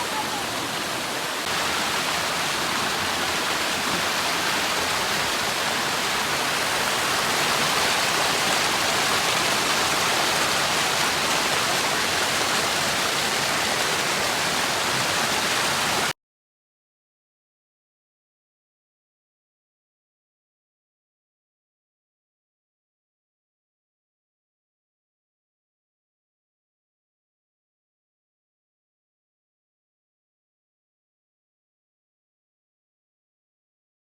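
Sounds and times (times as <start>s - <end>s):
waterfall rushing: 0.0s - 16.1s.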